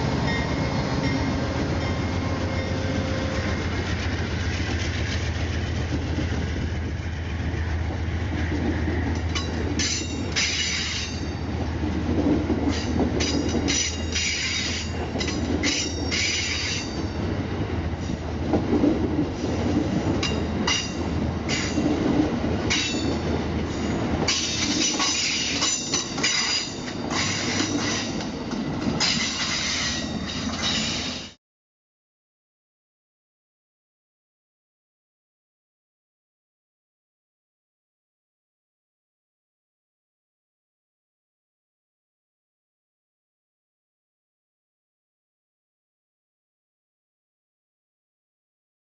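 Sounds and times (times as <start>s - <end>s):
locomotive drone: 0.0s - 31.4s
wheels clicking over rail joints: 18.1s - 31.4s.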